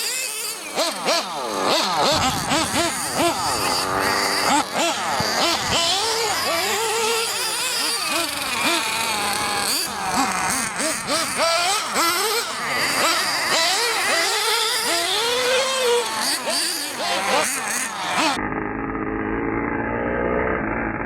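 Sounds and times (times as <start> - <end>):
rc engine revving: 0.0 - 21.0.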